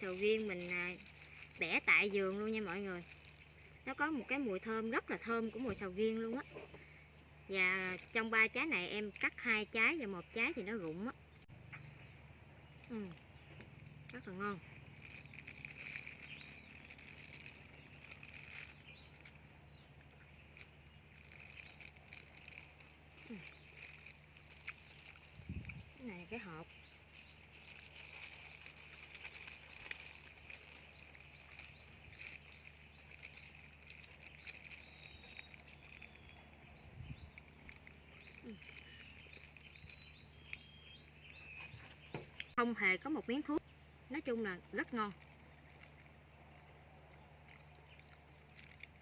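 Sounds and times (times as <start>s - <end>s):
steady outdoor hum: 0.0s - 49.0s
bird chirps: 1.6s - 45.2s
birds singing high whistled notes: 34.2s - 42.6s.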